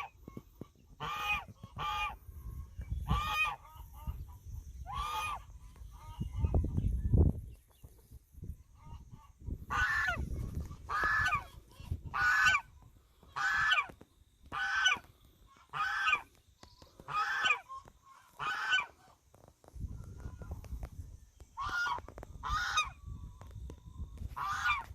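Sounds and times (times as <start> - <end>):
goose honking: 1.0 - 2.2, 3.1 - 6.6, 8.7 - 19.3, 21.5 - 23.0, 24.3 - 24.9.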